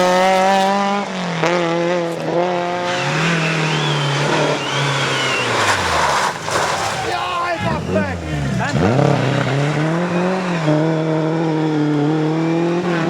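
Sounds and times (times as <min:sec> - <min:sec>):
car engine at high revs: 0:00.0 - 0:13.0
tyres squealing: 0:02.1 - 0:11.0.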